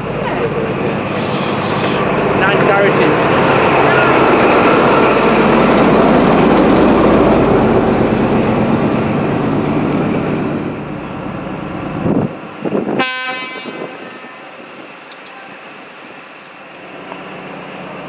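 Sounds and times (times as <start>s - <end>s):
diesel train passing: 0.0s - 18.0s
train horn: 13.0s - 14.6s.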